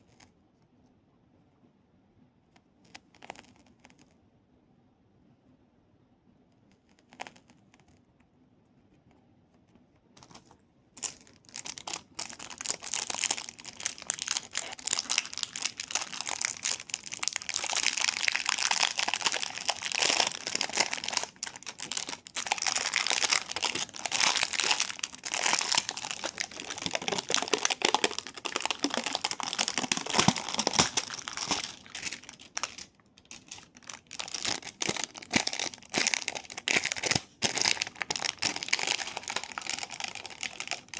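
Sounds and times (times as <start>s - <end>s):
plastic crinkling: 10.2s - 40.9s.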